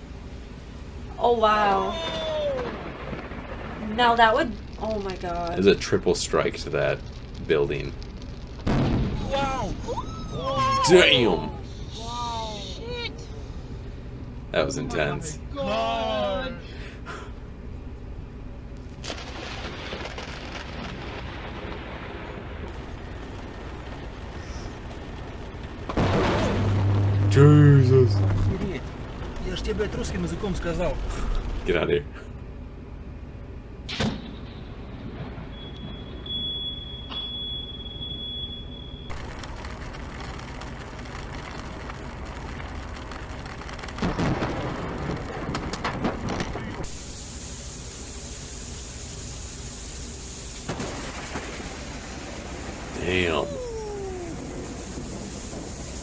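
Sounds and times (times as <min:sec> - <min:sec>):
low thunder rumble: 0:01.0 - 0:10.8, 0:19.1 - 0:36.5, 0:39.1 - 0:47.2, 0:50.8 - 0:56.0
heavy rain hissing: 0:19.1 - 0:32.3, 0:39.1 - 0:56.0.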